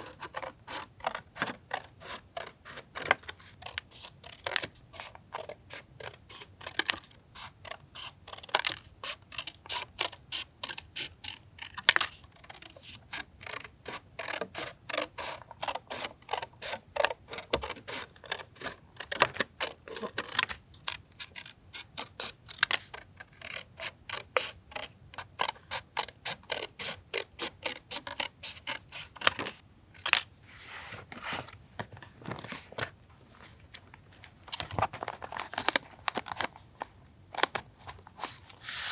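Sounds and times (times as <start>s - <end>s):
hand tools clicking and snipping paper: 0.0s - 30.2s.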